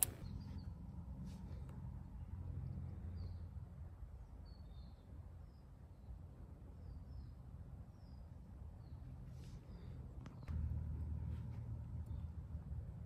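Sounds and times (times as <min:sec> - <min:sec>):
low rumble: 0:10.3 - 0:13.0.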